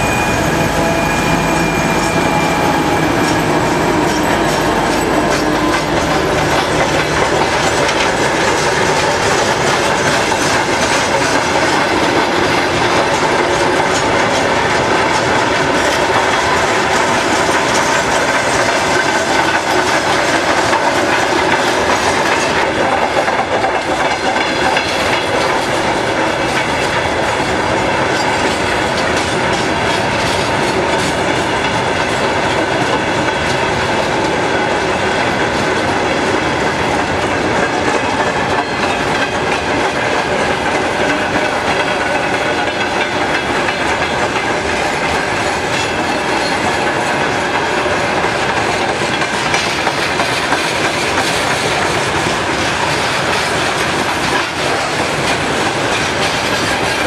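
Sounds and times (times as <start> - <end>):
train wheels rumbling: 0.0 - 57.0
clickety-clack over rail joints: 0.6 - 57.0.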